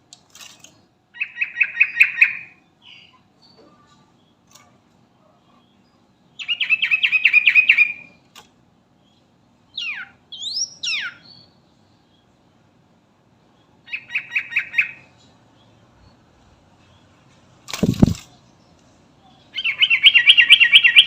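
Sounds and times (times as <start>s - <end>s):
bulbul singing: 19.3s - 21.0s.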